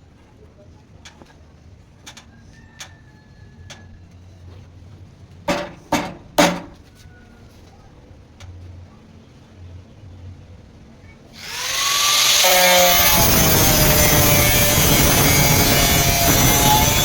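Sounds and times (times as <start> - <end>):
loud knocks: 5.5 - 6.8.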